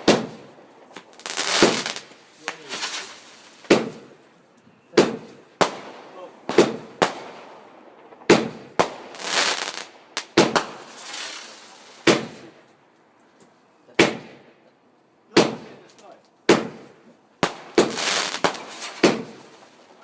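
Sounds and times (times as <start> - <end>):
hissing crackle: 0.0 - 4.1, 7.3 - 12.4
firework bangs with echo: 0.0 - 4.2, 4.9 - 11.4, 16.5 - 19.6.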